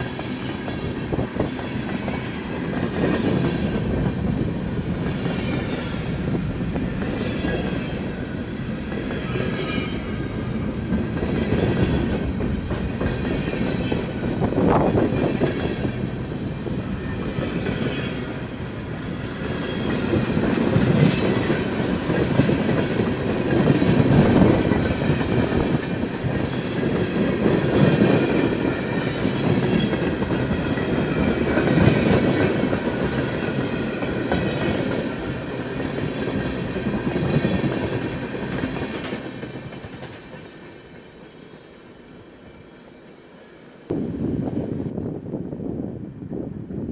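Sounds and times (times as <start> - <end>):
faint high wheel squeal: 38.1 - 46.7.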